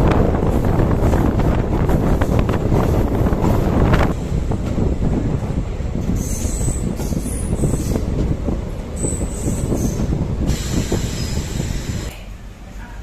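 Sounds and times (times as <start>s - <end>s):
train rumbling: 0.0s - 13.0s
wheels squealing on rails: 6.0s - 8.1s, 8.9s - 12.1s.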